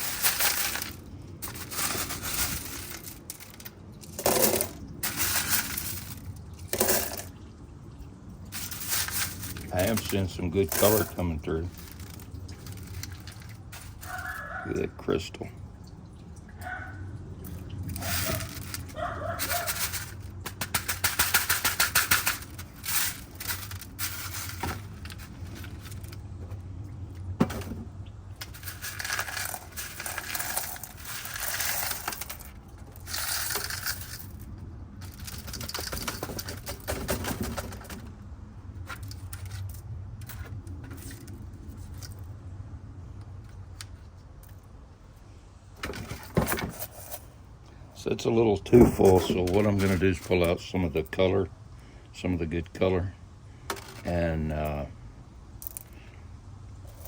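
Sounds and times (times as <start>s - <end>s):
low steady hum: 0.0s - 57.0s
stones clicking and rattling: 17.4s - 26.6s, 27.2s - 38.1s.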